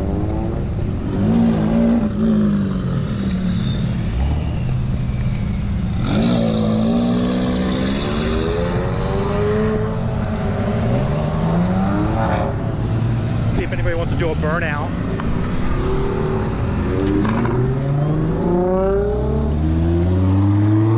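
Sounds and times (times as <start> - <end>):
car engine revving: 0.0 - 20.9.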